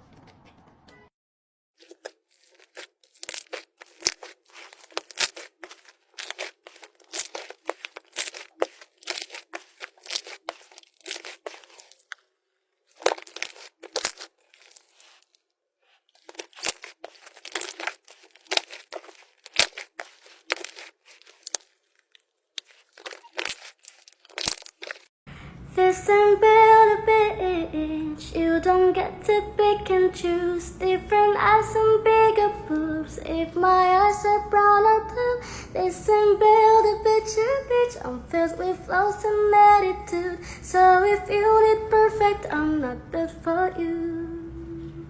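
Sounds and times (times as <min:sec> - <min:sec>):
slime popping and crackling: 0:01.8 - 0:12.3, 0:12.9 - 0:15.4, 0:16.1 - 0:25.1.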